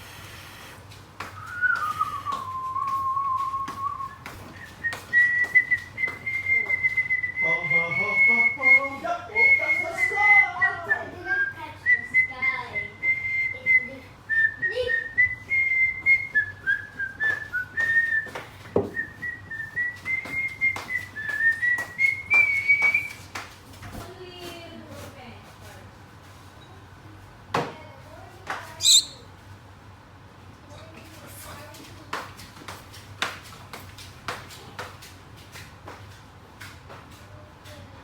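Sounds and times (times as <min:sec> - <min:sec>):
bird high whistle: 0:01.4 - 0:06.9, 0:28.8 - 0:29.2
low bird warbling: 0:28.8 - 0:29.2.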